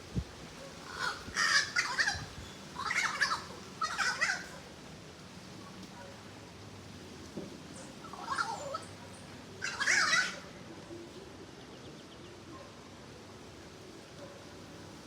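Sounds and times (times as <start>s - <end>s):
bird harsh calls: 0.8s - 4.6s, 8.0s - 9.0s, 9.6s - 10.5s.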